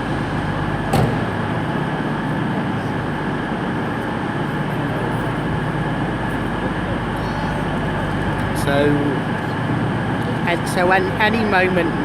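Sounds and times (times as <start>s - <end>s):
diesel train engines droning: 0.0s - 12.0s
sharp knock: 0.9s - 1.3s.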